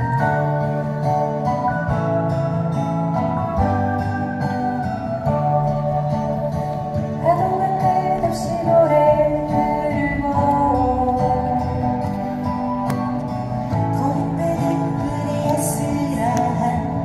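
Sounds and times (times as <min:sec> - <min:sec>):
guitar playing slow song: 0:00.0 - 0:17.0
woman singing: 0:03.5 - 0:12.6, 0:13.8 - 0:17.0.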